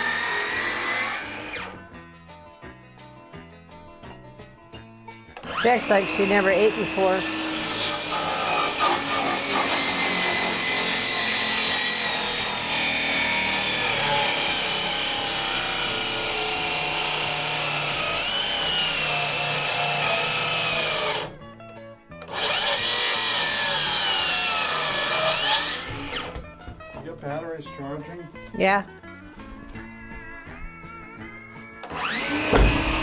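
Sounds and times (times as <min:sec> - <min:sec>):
power tool cutting wood: 0:00.0 - 0:01.8, 0:05.4 - 0:26.4, 0:31.8 - 0:33.0.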